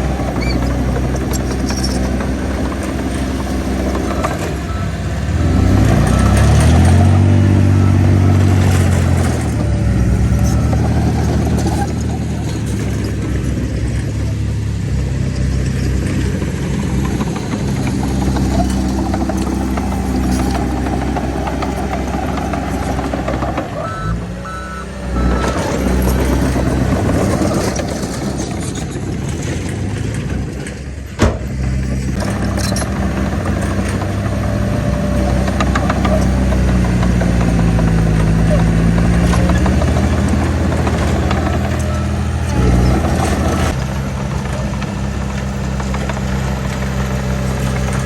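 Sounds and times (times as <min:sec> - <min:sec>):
diesel earthmoving machinery running: 0:00.0 - 0:48.0
reversing beeps: 0:04.0 - 0:12.0, 0:22.2 - 0:26.6, 0:41.4 - 0:42.2.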